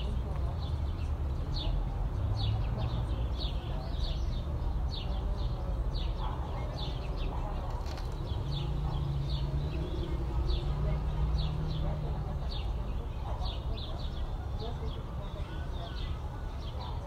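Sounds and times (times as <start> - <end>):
low city rumble: 0.0 - 17.0
small birds chirping: 0.0 - 17.0.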